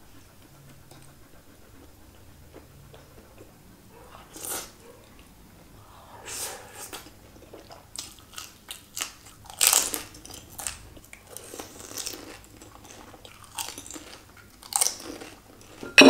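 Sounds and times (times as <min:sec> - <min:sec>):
person chewing crunchy food: 0:06.9 - 0:16.0.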